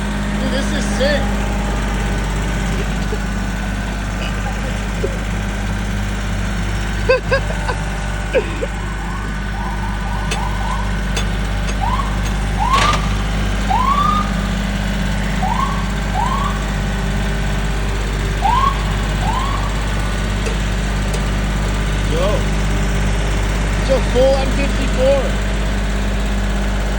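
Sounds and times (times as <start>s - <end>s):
tractor engine idling: 0.0s - 26.9s
rising and falling chirps: 6.9s - 11.2s.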